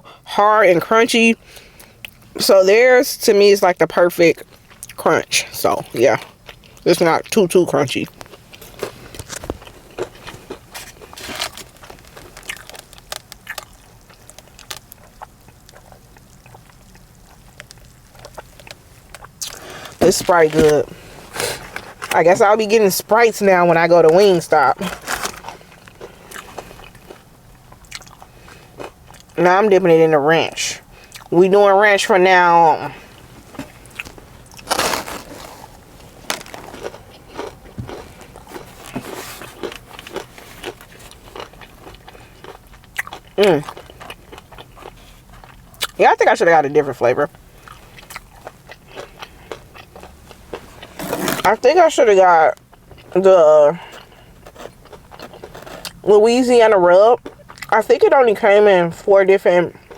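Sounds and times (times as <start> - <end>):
chewing and swallowing: 4.4 - 5.0, 6.0 - 7.4, 8.1 - 22.2, 24.1 - 29.4, 30.8 - 31.4, 32.8 - 46.0, 47.3 - 51.6, 52.5 - 56.1, 57.2 - 57.8.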